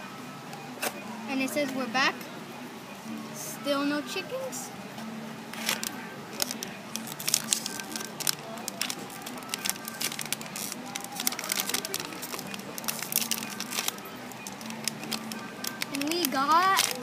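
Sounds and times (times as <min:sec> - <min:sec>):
packaging crinkling: 0:05.6 - 0:17.0.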